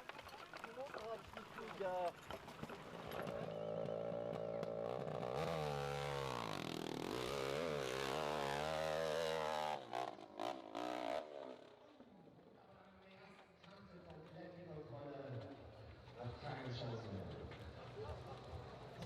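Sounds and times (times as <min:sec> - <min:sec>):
motorcycle engine revving: 0:02.5 - 0:12.1.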